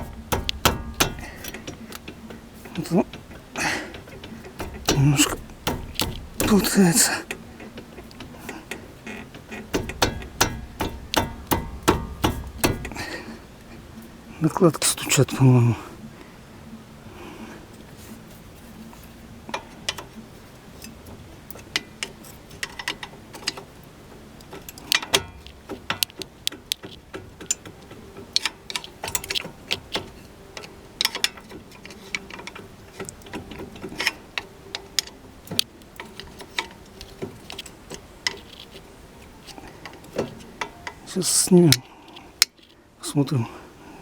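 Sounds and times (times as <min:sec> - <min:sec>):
brake pads knocking in caliper: 0:00.0 - 0:15.4.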